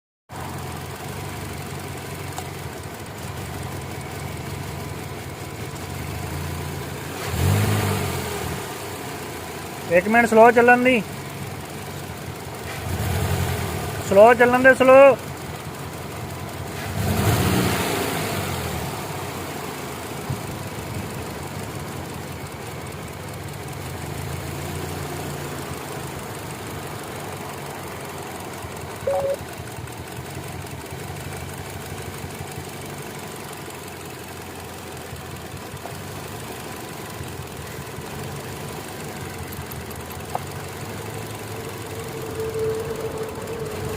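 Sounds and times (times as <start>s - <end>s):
car engine idling unevenly: 0.3s - 7.6s, 8.6s - 17.7s, 18.6s - 43.9s
short beep: 29.0s - 29.4s.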